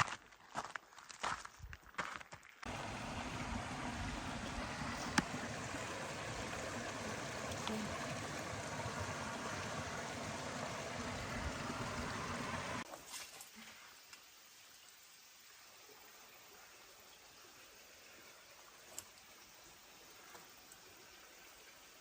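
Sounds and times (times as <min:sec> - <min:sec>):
stream water rushing: 0:02.6 - 0:12.9.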